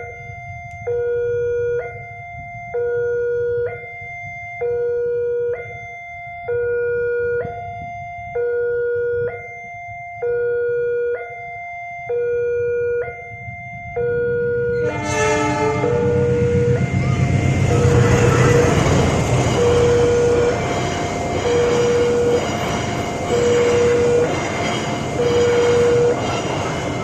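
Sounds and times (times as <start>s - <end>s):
level crossing two-tone alarm: 0.0s - 27.0s
steady low rumble: 13.4s - 27.0s.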